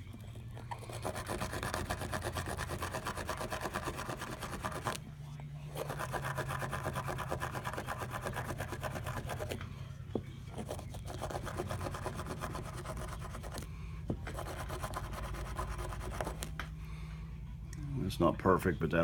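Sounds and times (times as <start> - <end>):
brush scrubbing metal: 0.8 - 5.0.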